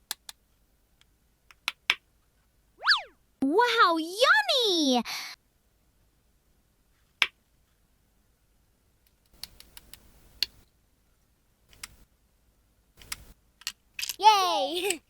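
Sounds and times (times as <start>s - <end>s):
plastic toy pieces clicking: 13.0s - 15.0s.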